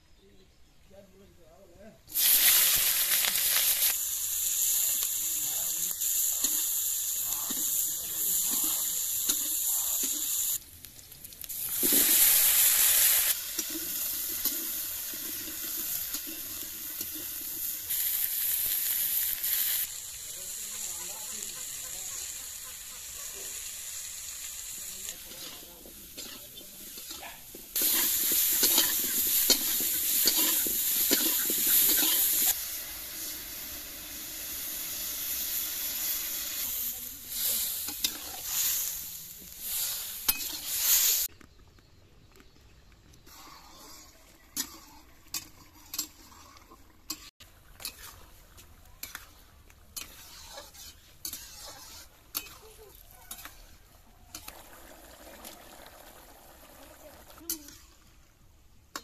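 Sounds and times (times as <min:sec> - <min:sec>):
vegetables sizzling in hot oil: 0:02.1 - 0:41.3, 0:47.1 - 0:58.0
spatula scraping a wok: 0:20.6 - 0:32.6, 0:34.4 - 0:41.3, 0:43.2 - 0:48.4, 0:49.0 - 0:54.5.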